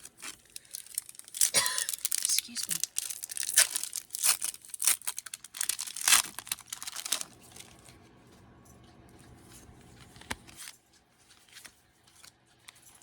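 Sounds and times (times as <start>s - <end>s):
wrapper tearing and crinkling: 0.0s - 7.9s.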